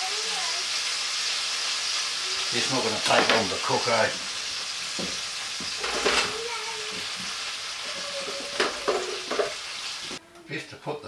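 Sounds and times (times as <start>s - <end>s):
meat sizzling in a roasting dish: 0.0s - 10.2s
potato pieces knocking in pan: 3.0s - 3.6s, 4.9s - 10.2s.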